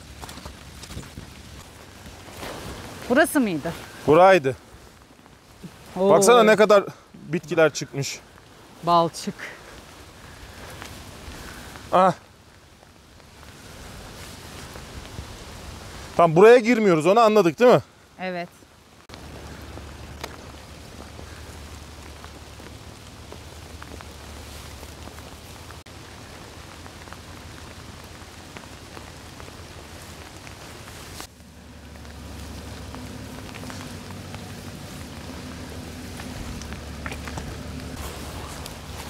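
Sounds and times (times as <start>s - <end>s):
rain falling: 0.0s - 39.0s
low hum: 19.2s - 39.0s.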